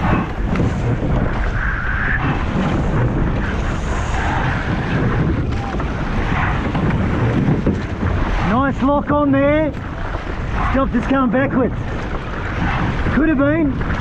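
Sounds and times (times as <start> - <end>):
rushing sea water: 0.0 - 14.0
wind buffeting microphone: 0.0 - 14.0.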